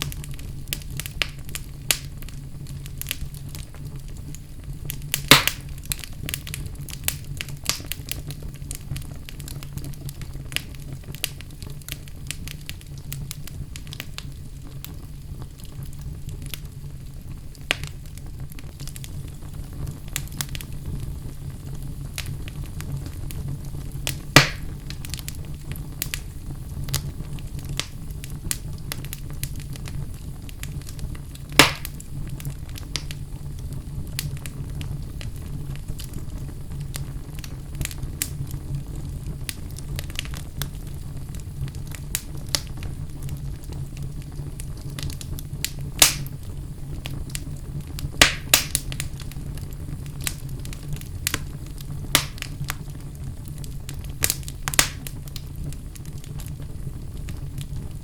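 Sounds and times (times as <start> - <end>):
fire popping: 0.0 - 58.0
wood fire crackling: 0.0 - 58.0.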